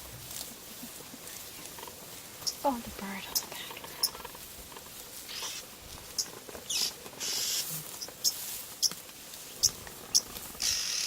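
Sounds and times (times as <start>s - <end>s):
oxpeckers chirping: 0.8s - 11.0s
oxpecker hissing churrs: 5.3s - 7.7s, 10.1s - 11.0s.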